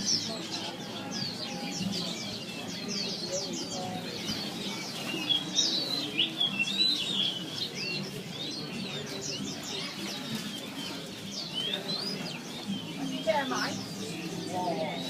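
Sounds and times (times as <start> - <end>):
murmur of voices: 0.0 - 15.0
songbirds chirping and whistling: 0.0 - 15.0.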